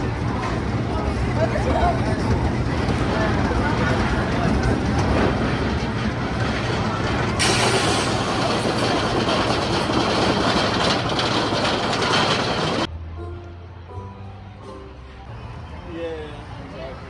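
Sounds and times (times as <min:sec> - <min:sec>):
roller coaster rumbling on track: 0:00.0 - 0:12.9.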